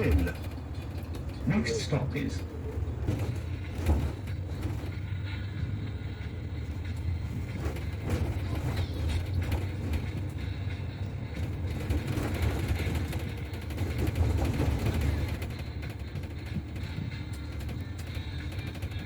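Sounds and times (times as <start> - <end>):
knocks and rattles: 0.0 - 5.6, 6.2 - 19.0
bus engine and road rumble: 0.0 - 19.0.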